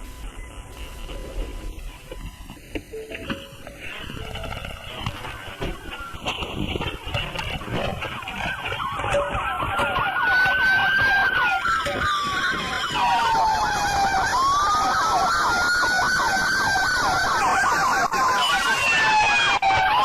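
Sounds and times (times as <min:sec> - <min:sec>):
low road rumble: 0:00.0 - 0:20.0
police siren wailing: 0:00.0 - 0:20.0
police siren yelping: 0:00.0 - 0:20.0.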